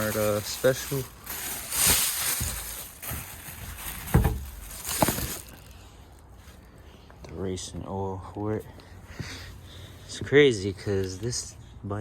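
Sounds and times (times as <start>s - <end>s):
rustling handling noise: 0.0s - 7.4s.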